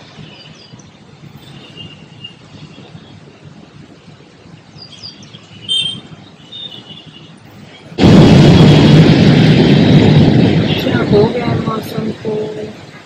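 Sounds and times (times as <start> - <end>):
birds chirping: 0.2 - 3.2, 4.6 - 7.4
low background rumble: 7.6 - 13.0.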